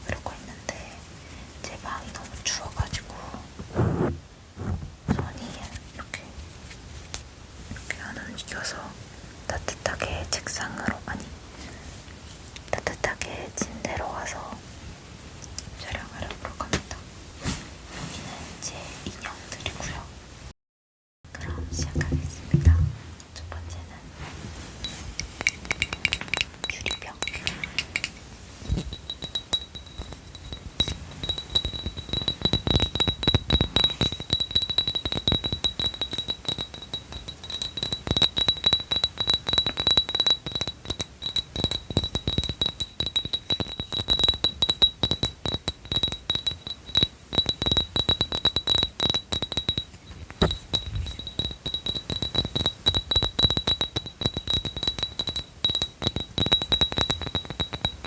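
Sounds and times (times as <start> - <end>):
glass bottle tapping clinks: 24.8 - 58.0
glass ringing high tone: 24.8 - 58.0.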